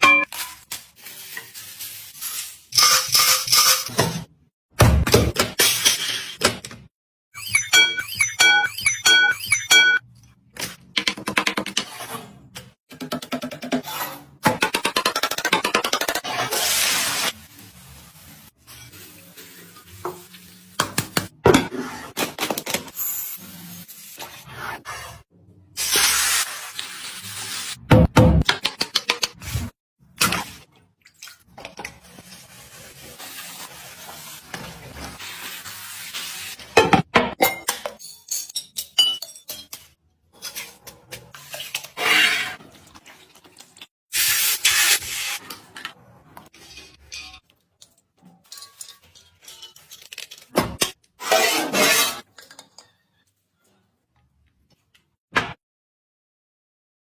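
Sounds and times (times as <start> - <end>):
cooking utensils clinking and scraping: 2.7 - 4.3, 44.7 - 53.2
food sizzling in a pot: 32.9 - 36.7.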